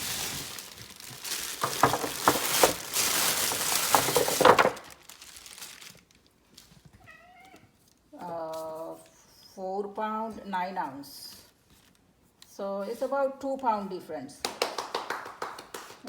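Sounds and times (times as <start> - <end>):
crinkly rustling: 0.0 - 7.2.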